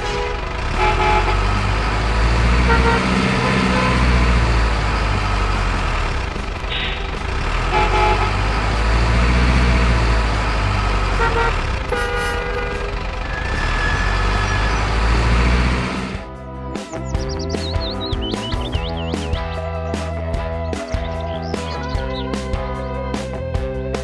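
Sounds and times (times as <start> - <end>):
short horn toots: 0.0 - 4.8, 6.7 - 9.9, 10.8 - 16.2
truck engine rumbling: 0.0 - 24.0.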